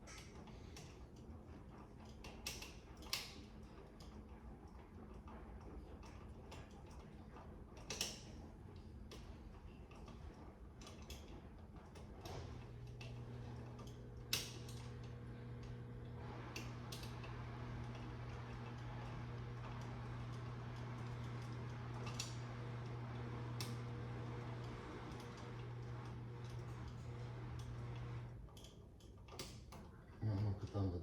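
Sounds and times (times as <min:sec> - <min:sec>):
steady low hum: 0:12.4 - 0:28.4.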